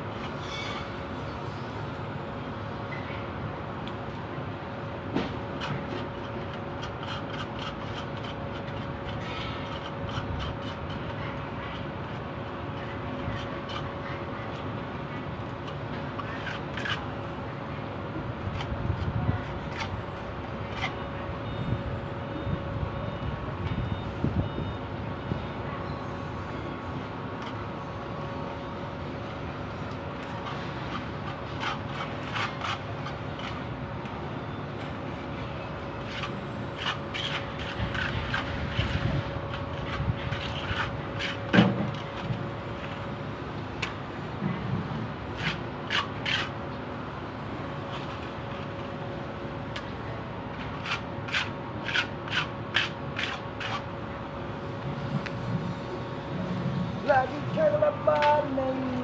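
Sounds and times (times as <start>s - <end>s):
scraping with clicks and taps: 5.1s - 17.4s, 29.8s - 34.2s, 34.8s - 43.2s, 49.7s - 53.9s.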